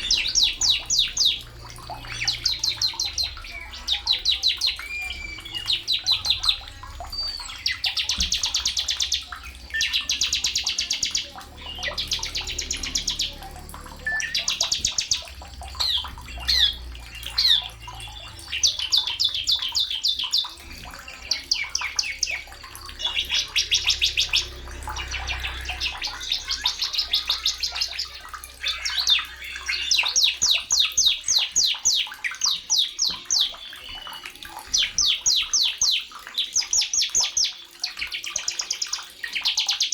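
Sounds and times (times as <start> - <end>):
faint low hum: 0.0 - 31.4
songbird singing: 0.0 - 39.9.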